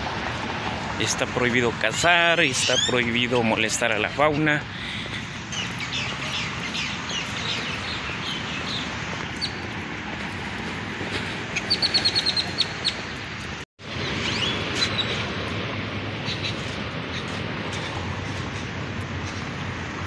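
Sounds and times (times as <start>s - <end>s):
birds chirping and calling: 2.5s - 3.6s, 4.2s - 15.3s, 16.2s - 18.4s.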